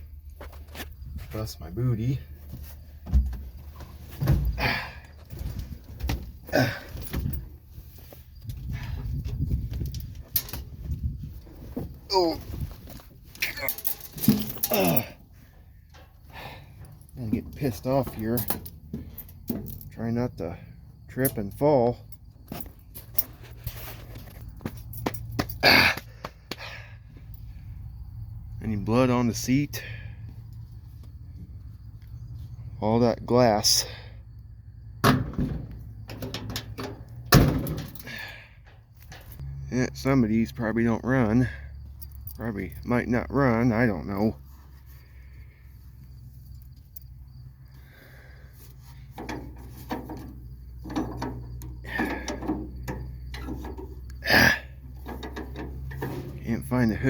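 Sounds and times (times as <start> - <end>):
knocks and clicks of clambering: 11.8 - 20.2, 49.0 - 57.0
metal levers clunking and rattling: 13.1 - 15.2, 15.8 - 20.2, 35.0 - 39.4, 49.0 - 54.1, 54.8 - 57.0
sharp breath of effort: 25.6 - 27.2, 38.1 - 38.6
metal scrape: 55.0 - 56.5.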